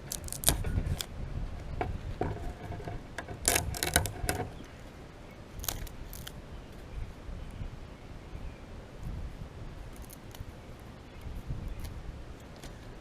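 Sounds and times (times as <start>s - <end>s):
dry plant stalk cut and scraped: 0.0s - 4.8s, 5.6s - 6.4s, 9.9s - 10.5s.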